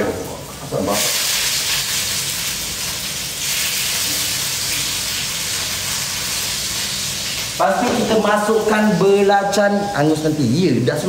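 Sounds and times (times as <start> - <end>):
onions sizzling in hot oil: 0.0 - 10.6.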